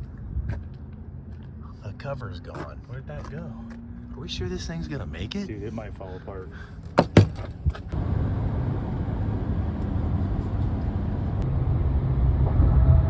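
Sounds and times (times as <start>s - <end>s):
truck engine and road rumble: 0.0s - 13.0s
sharp knocks: 7.0s - 7.5s.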